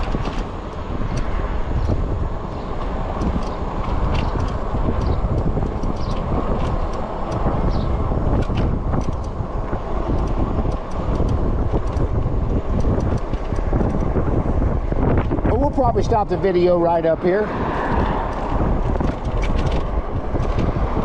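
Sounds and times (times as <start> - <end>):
wind rushing over microphone: 0.0 - 21.0
light ticks and rattles: 2.8 - 9.4, 10.0 - 14.2.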